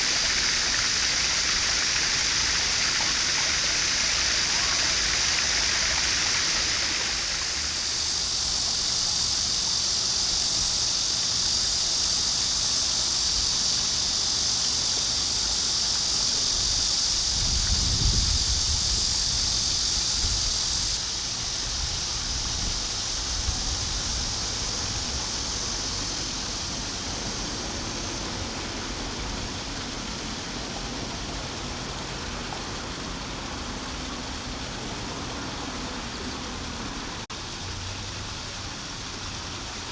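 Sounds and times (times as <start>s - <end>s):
high even hiss: 0.0s - 31.6s.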